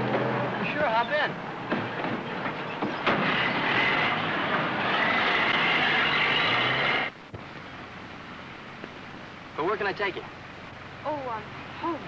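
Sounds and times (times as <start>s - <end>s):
car engine running loud: 0.0s - 7.2s.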